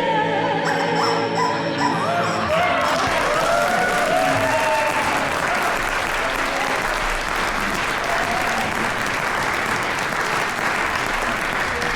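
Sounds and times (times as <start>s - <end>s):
singers holding a chord: 0.0s - 5.7s
audience applauding: 2.2s - 11.9s.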